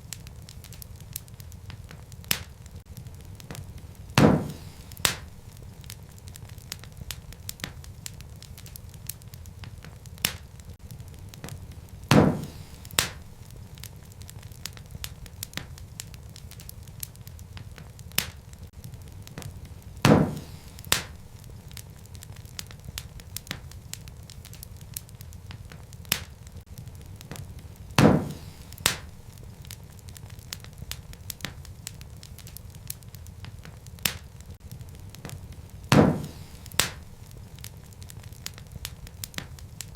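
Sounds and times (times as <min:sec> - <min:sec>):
wood fire crackling: 0:00.0 - 0:39.9
loud sharp pops: 0:03.4 - 0:05.6, 0:11.4 - 0:13.6, 0:19.3 - 0:23.6, 0:27.3 - 0:29.9, 0:35.2 - 0:38.6.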